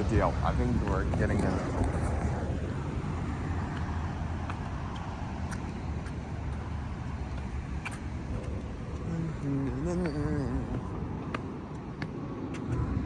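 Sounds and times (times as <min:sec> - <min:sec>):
large vehicle engine rumble: 0:00.0 - 0:12.0.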